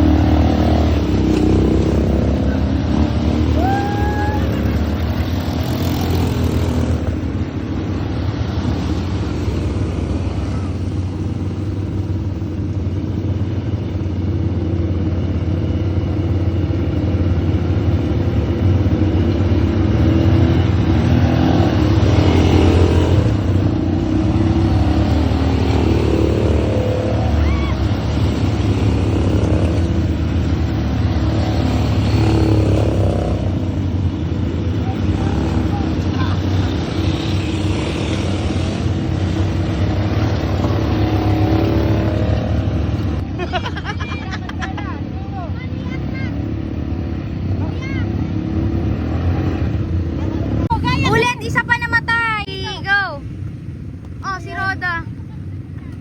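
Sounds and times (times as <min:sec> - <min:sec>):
quad bike engine rumbling: 0:00.0 - 0:56.0.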